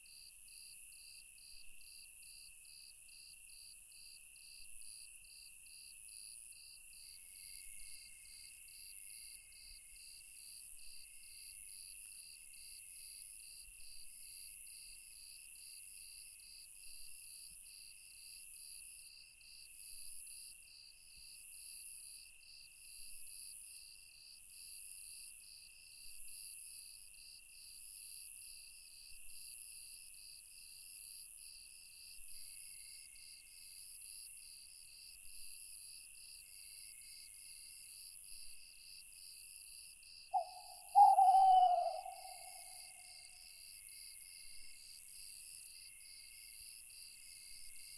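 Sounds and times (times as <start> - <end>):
steady high insect trill: 40.0 - 47.9
pulsing cricket chirps: 40.1 - 44.5
hissy insect pulse: 40.4 - 42.9.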